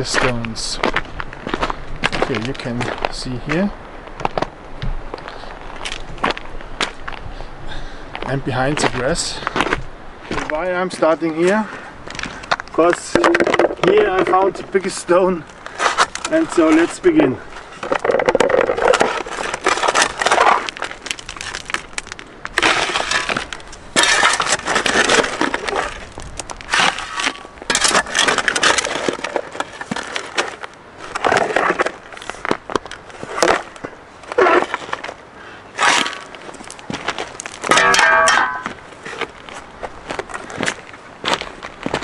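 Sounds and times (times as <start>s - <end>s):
shovel digging into gravel: 18.8s - 20.8s, 22.6s - 26.1s, 26.7s - 30.4s, 35.8s - 36.4s.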